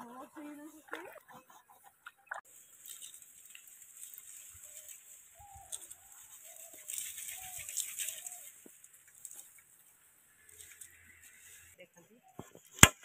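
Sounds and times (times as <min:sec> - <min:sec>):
bird calling: 0:04.5 - 0:09.4.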